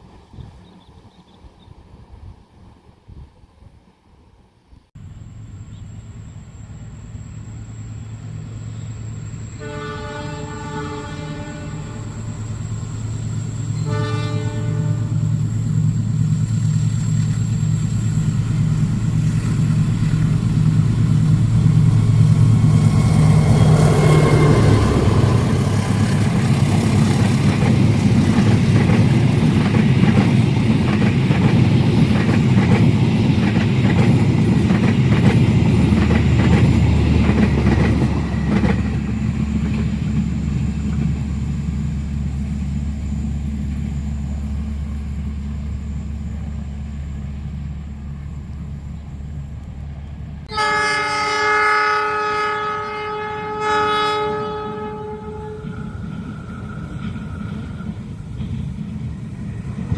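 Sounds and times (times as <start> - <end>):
diesel locomotive engine drone: 0.0 - 59.9
train wheels clacking on rails: 14.6 - 46.7, 55.6 - 59.9.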